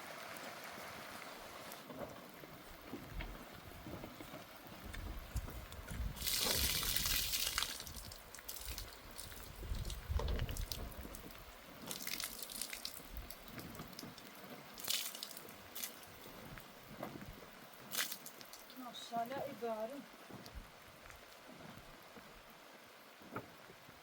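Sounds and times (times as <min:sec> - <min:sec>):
water splashing: 0:05.2 - 0:17.0, 0:17.8 - 0:20.0.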